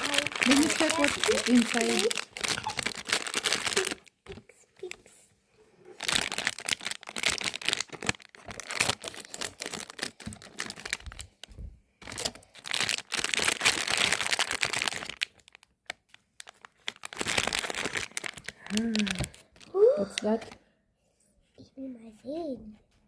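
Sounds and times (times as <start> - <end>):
packaging crumpled and torn: 0.0 - 5.0, 6.0 - 20.6.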